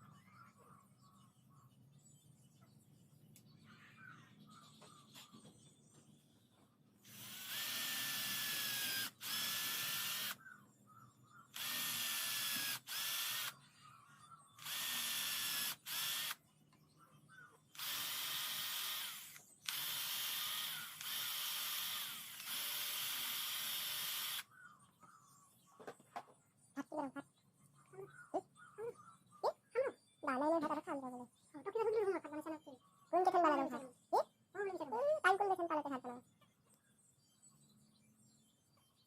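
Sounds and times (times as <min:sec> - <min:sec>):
power tool motor whine: 0:07.1 - 0:10.4, 0:11.6 - 0:13.5, 0:14.6 - 0:16.4, 0:17.8 - 0:24.4.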